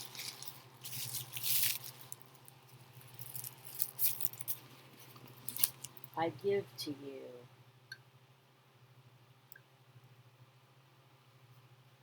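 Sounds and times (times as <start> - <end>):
packaging rustling and crinkling: 0.0 - 6.2
low electrical hum: 0.0 - 12.0.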